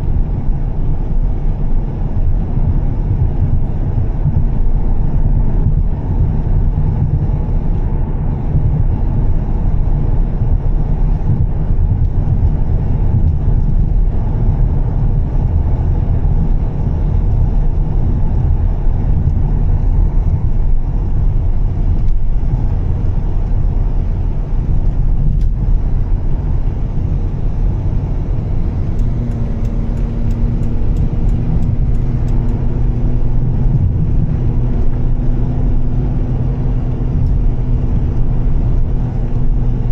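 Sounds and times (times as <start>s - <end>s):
car engine rumbling: 0.0s - 39.9s
droning exhaust note: 0.0s - 39.9s
road noise: 0.0s - 39.9s.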